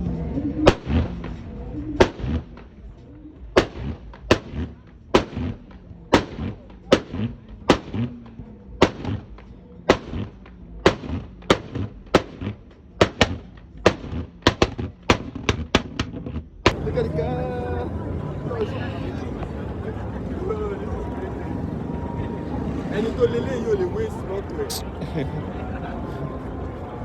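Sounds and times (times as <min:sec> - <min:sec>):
car exhaust backfiring bangs: 0:00.6 - 0:16.8.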